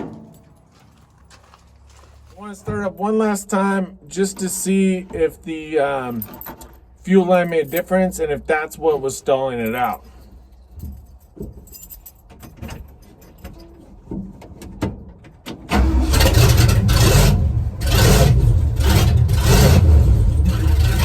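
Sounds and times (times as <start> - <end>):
truck engine starting and running: 15.5 - 21.0.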